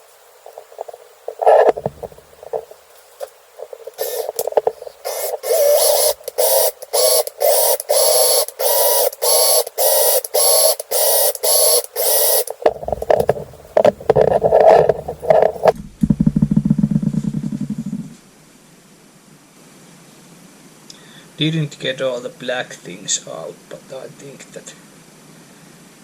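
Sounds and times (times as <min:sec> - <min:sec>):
valve grinding against seat: 0:00.6 - 0:02.7, 0:03.6 - 0:15.8
drill whirring: 0:03.9 - 0:15.8.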